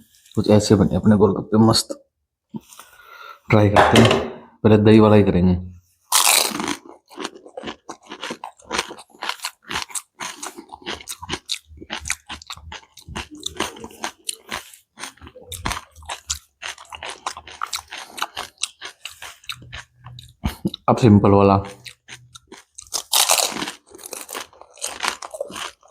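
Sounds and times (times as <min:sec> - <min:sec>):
crunchy chewing: 0:06.1 - 0:20.9, 0:21.6 - 0:25.9.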